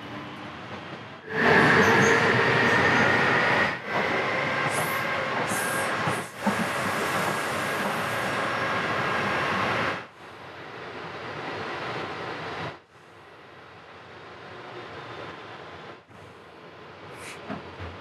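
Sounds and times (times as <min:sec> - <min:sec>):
train wheels rumbling on rail: 0:00.0 - 0:10.0, 0:17.0 - 0:18.0.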